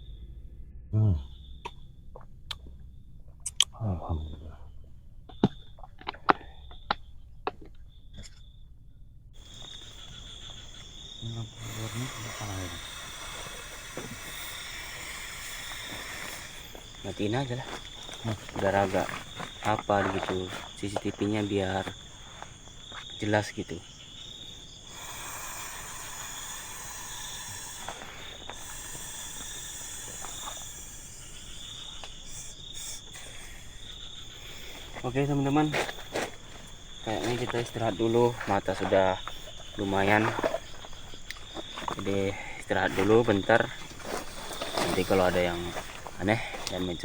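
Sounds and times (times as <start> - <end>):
crickets chirring: 0.0 - 47.0
hiss: 9.4 - 23.2, 24.3 - 47.0.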